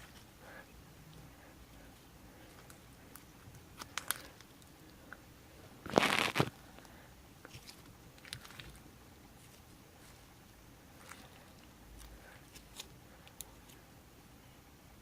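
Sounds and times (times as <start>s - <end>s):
crunchy rustle: 5.8s - 6.6s.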